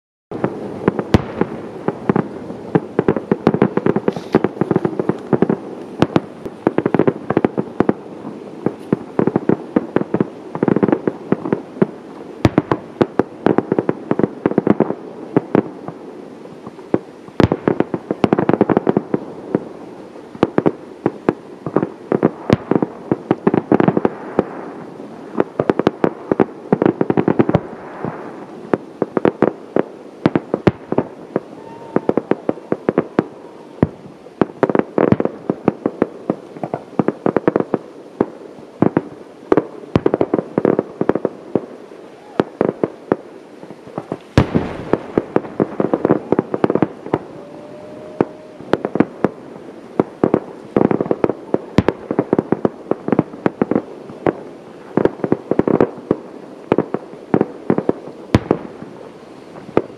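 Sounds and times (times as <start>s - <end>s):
loud firework bangs: 0.3s - 16.0s, 17.0s - 19.6s, 20.4s - 37.8s, 43.9s - 59.9s
fireworks crackling and popping: 0.3s - 59.9s.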